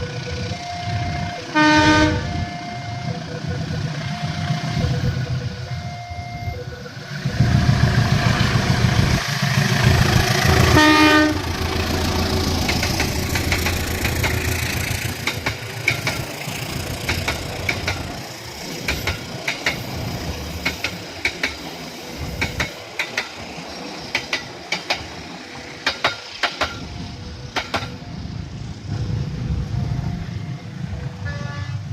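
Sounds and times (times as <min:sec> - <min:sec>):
train engine rumble: 0:00.0 - 0:31.9
train horn: 0:01.0 - 0:03.0, 0:10.4 - 0:12.5, 0:31.2 - 0:31.9
wheels clacking over rail joints: 0:07.0 - 0:28.2.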